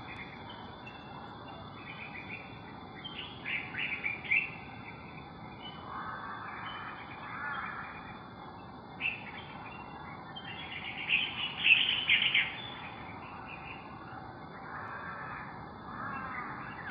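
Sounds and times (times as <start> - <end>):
birds chirping and calling: 9.0 - 14.0.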